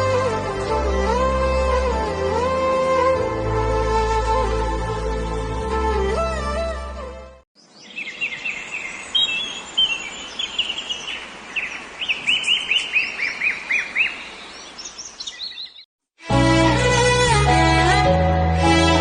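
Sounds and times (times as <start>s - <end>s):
song music: 0.0s - 7.4s, 16.2s - 19.0s
faint outdoor hiss: 7.6s - 15.8s
birds chirping: 7.6s - 15.9s.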